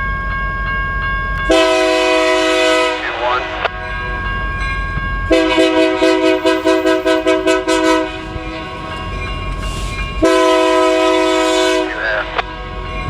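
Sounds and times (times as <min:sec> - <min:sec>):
low train rumble: 0:00.0 - 0:13.0
locomotive air horn blasts: 0:01.5 - 0:03.6, 0:05.3 - 0:08.8, 0:10.2 - 0:12.5.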